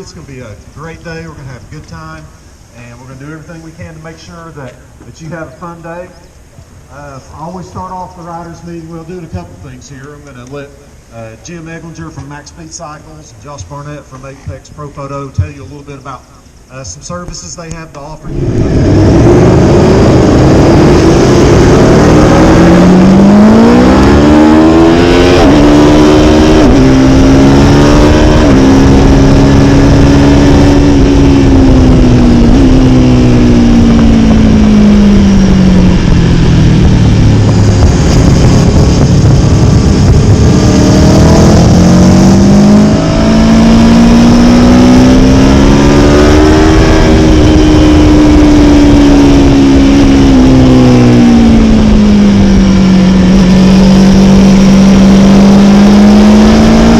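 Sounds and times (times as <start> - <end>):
motorcycle engine accelerating: 18.2 - 56.9
wind rush: 18.2 - 56.9.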